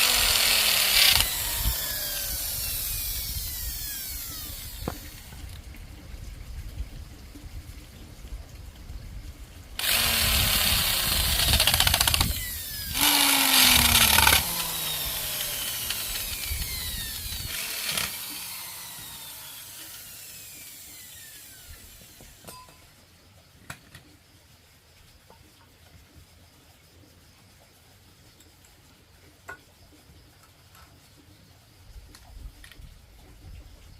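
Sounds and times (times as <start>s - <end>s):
electric power tool running: 0.0s - 5.5s, 9.8s - 22.5s.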